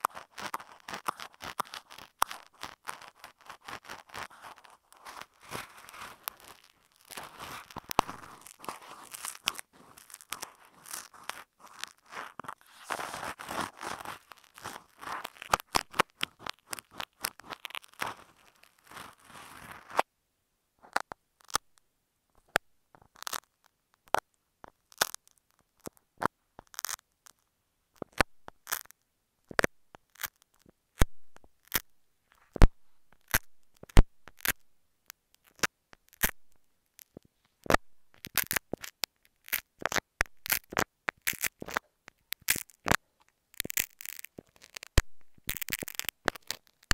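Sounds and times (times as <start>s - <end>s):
ear pick scratching a microphone: 0.0s - 20.1s, 35.4s - 46.9s.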